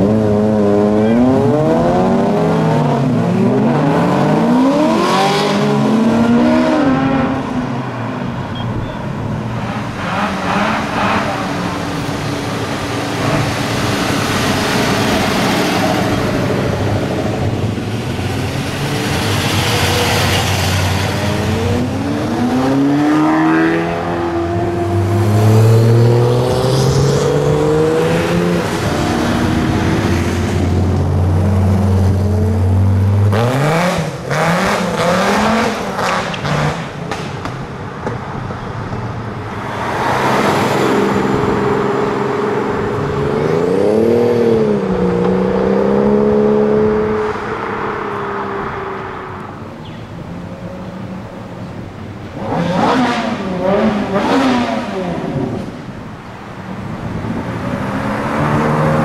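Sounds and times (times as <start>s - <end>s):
sports car engines accelerating: 0.0s - 37.2s, 38.1s - 59.0s
car engine revving with sharp cracks: 33.2s - 40.8s.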